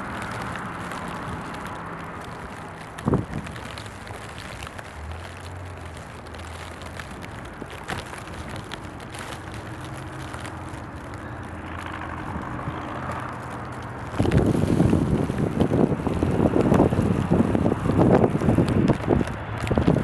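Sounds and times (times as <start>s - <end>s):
street noise: 0.0s - 20.0s
vehicle engine running: 0.0s - 20.0s
wind: 0.0s - 20.0s.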